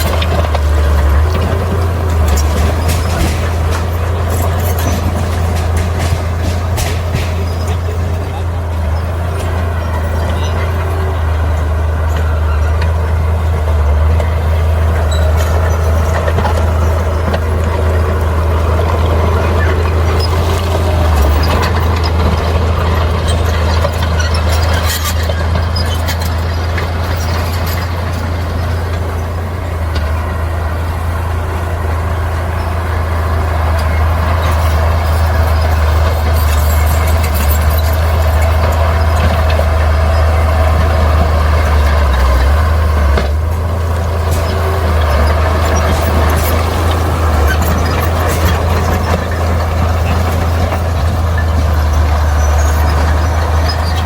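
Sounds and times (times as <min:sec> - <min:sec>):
knocks of rock being pushed: 0:00.0 - 0:08.6
bulldozer diesel engine rumbling: 0:00.0 - 0:54.0.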